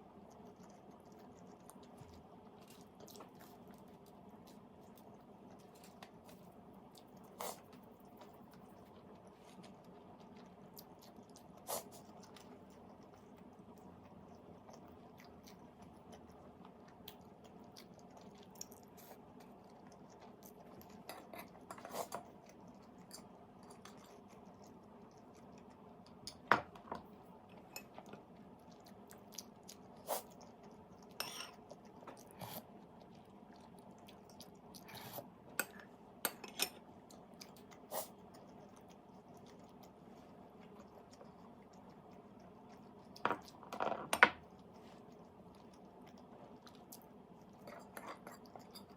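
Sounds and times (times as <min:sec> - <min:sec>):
low background hum: 0:00.0 - 0:48.9
person chewing: 0:00.1 - 0:26.5, 0:27.5 - 0:43.7, 0:44.4 - 0:48.9.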